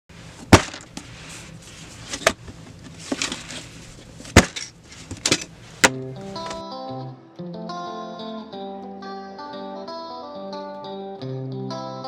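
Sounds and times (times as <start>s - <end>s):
sharp cracks and knocks: 0.5s - 1.0s, 4.3s - 6.6s
plucked guitar music: 5.8s - 12.0s.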